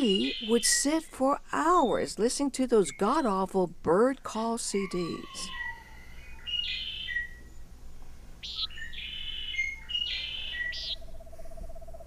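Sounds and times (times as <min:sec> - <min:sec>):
bird whistled chirps: 0:00.0 - 0:00.8, 0:06.4 - 0:07.5, 0:08.4 - 0:11.1
long steady bird note: 0:04.7 - 0:12.0.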